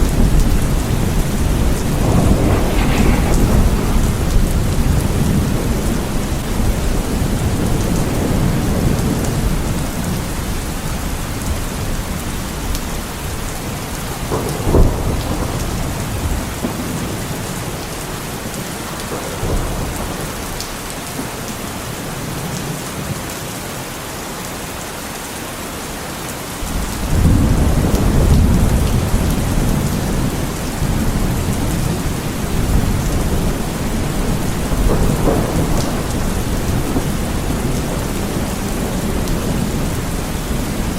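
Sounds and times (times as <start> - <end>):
sharp thunderclap: 0.0 - 9.5, 14.2 - 17.8, 26.8 - 40.9
rolling thunder: 0.0 - 10.5, 11.3 - 21.4, 26.6 - 40.9
heavy rain falling: 0.0 - 40.9.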